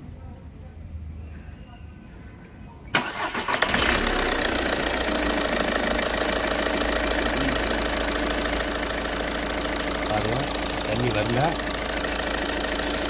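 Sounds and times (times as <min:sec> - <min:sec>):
diesel engine idling: 0:03.0 - 0:13.0.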